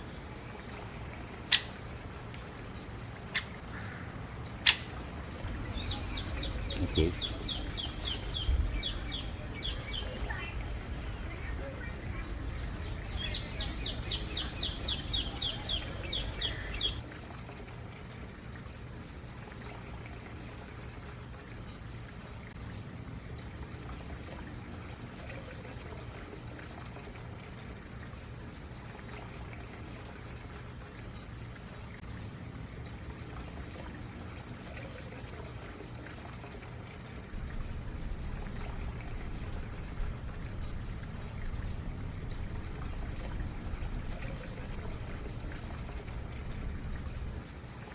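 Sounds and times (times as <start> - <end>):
stream water trickling: 0.0 - 47.9
bird trilling: 4.6 - 5.0, 5.6 - 12.0, 12.6 - 17.0
low rumble: 37.3 - 47.5.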